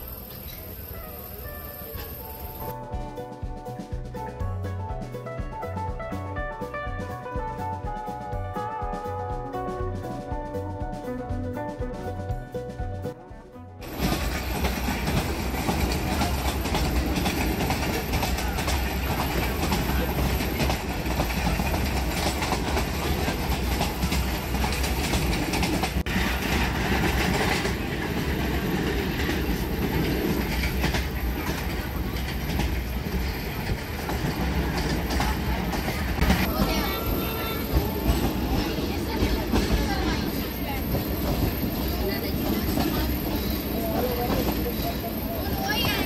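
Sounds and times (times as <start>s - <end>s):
passenger train running on track: 0.0s - 13.1s, 13.8s - 46.0s.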